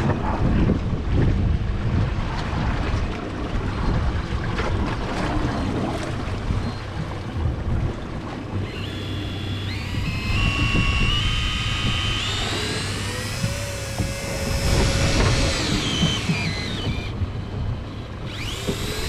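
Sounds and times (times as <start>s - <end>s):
wind: 0.0s - 19.0s
boat engine: 2.6s - 19.0s
electric fishing reel whine: 8.5s - 19.0s.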